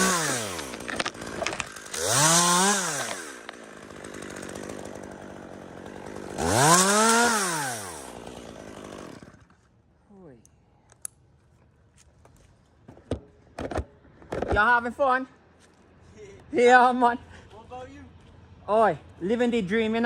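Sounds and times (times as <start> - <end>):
chainsaw revving and idling: 0.0 - 9.6.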